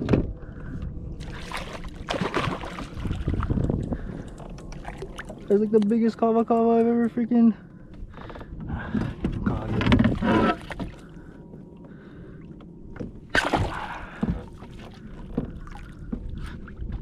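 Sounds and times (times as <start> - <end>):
water splashing and sloshing: 0.0 - 17.0
sharp splash: 1.2 - 3.2, 13.3 - 14.1.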